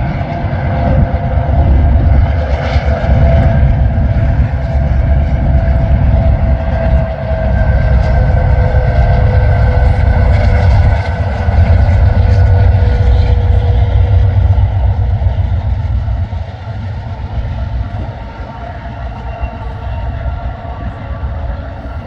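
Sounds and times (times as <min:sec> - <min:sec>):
steady tones: 0:00.0 - 0:22.0
train rumbling past: 0:00.0 - 0:22.0.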